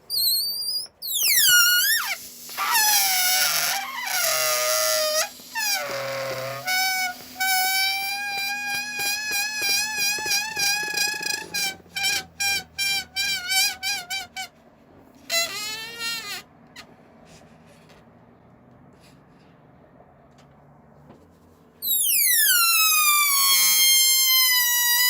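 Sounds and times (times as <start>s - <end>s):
balloon squealing deflating: 0.0s - 14.5s, 15.2s - 16.9s, 21.8s - 25.0s.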